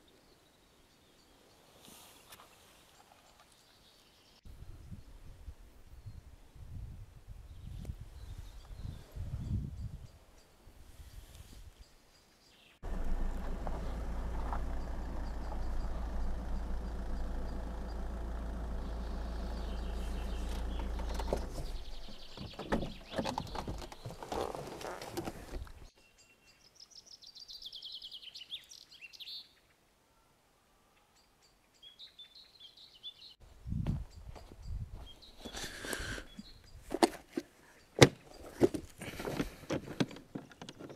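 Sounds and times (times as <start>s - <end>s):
small birds trilling: 12.5s - 29.7s, 34.1s - 36.9s
low mechanical rumble: 12.8s - 23.1s
irregular knocks and rustling: 20.1s - 25.8s.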